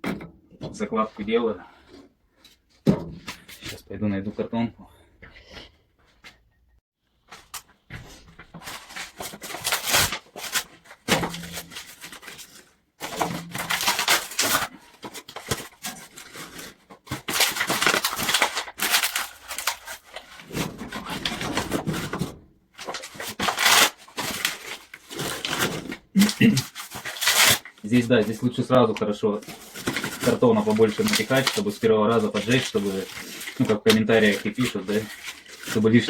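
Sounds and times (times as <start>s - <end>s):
cardboard tearing and crumpling: 8.6s - 36.0s.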